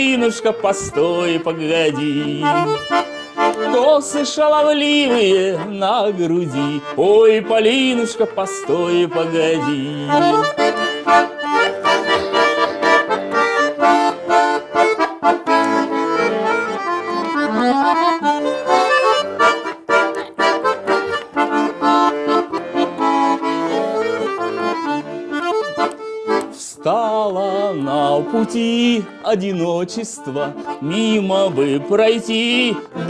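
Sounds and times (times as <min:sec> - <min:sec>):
accordion playing folk melody: 0:00.0 - 0:33.0.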